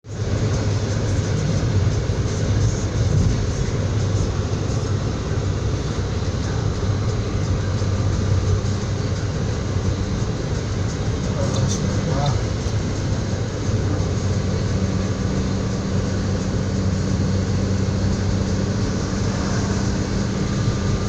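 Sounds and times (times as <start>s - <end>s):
train carriage rumble with hiss: 0.0s - 21.0s.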